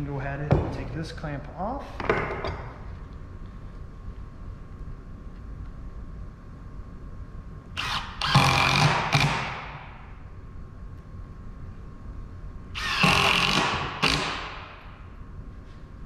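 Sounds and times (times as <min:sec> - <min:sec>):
power drill driving screws: 0:07.8 - 0:09.5, 0:12.8 - 0:14.6.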